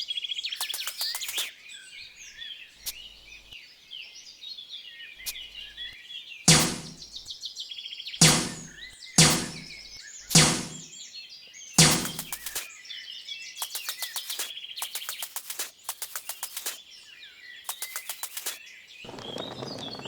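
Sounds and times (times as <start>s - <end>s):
small birds chirping: 0.1s - 20.0s
quick sharp clicking: 0.6s - 1.5s, 6.5s - 7.0s, 8.2s - 9.7s, 10.3s - 10.9s, 11.8s - 12.7s, 13.6s - 16.8s, 17.7s - 18.6s
loud knocks: 6.5s - 7.0s, 8.2s - 9.7s, 10.4s - 10.9s, 11.8s - 12.4s.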